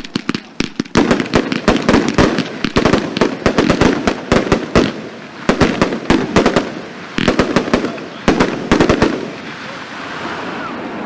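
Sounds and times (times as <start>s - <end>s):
firework bangs: 0.0s - 10.7s
firework crackling: 0.0s - 11.0s.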